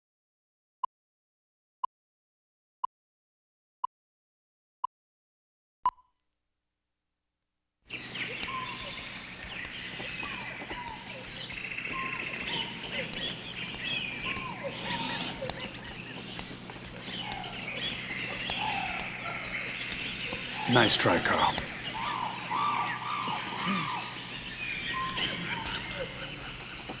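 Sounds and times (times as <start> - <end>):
birds chirping and calling: 7.9 - 27.0.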